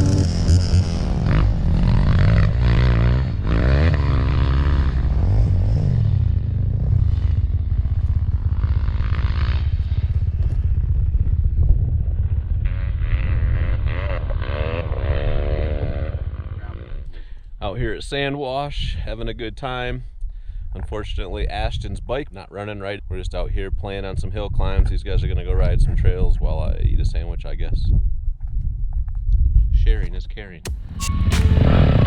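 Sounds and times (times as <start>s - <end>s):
dirt bike engine revving: 0.0s - 7.4s, 13.0s - 16.6s.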